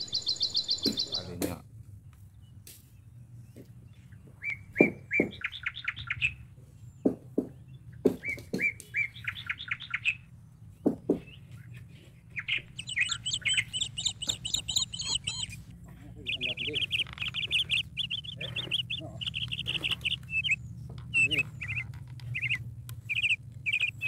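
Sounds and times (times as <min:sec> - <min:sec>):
high chirps: 0:00.0 - 0:01.3, 0:12.3 - 0:24.0
songbird singing with trill: 0:00.0 - 0:01.5, 0:02.1 - 0:24.0
sharp knocks: 0:10.8 - 0:11.3.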